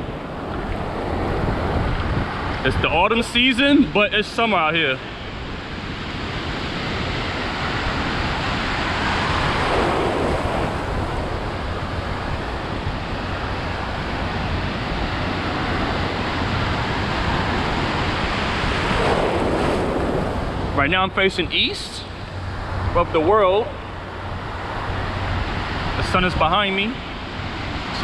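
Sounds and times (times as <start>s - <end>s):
surf breaking and washing: 0.0s - 28.0s
wind buffeting microphone: 0.0s - 28.0s.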